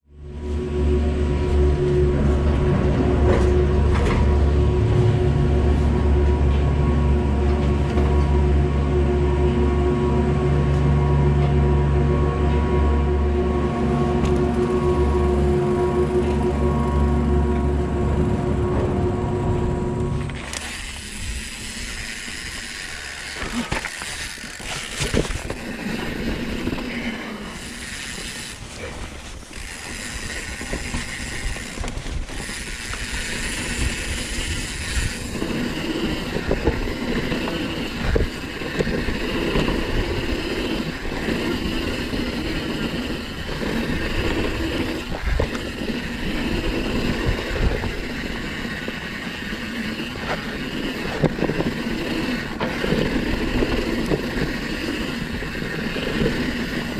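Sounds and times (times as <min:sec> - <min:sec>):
tyre and wind noise: 0:18.2 - 0:56.9
bike knocking and rattling: 0:20.2 - 0:56.9.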